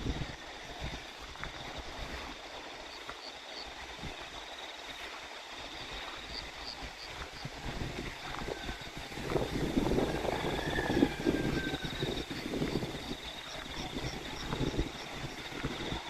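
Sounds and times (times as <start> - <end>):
crickets droning: 0.0 - 16.0
flowing water: 0.0 - 16.0
wind on microphone: 0.0 - 16.0.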